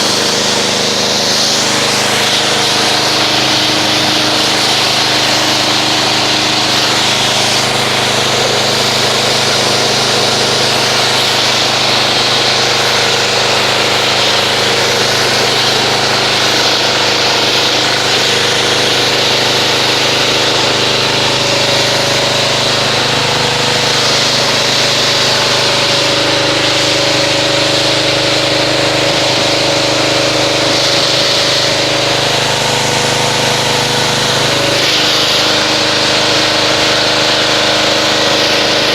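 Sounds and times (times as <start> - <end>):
pressure washer pump hum: 0.0 - 38.9
water spray hissing: 0.0 - 38.9.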